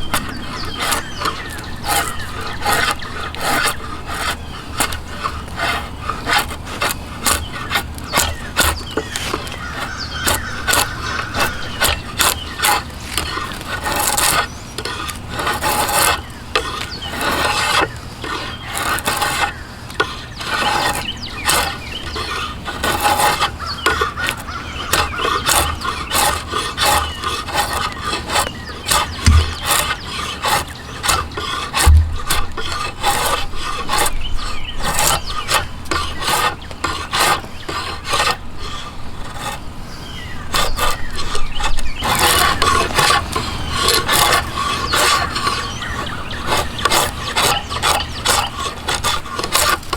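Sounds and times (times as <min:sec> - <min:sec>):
hand tool rasping wood: 0:00.0 - 0:49.9
dull low knocks: 0:29.2 - 0:29.8, 0:31.8 - 0:32.6.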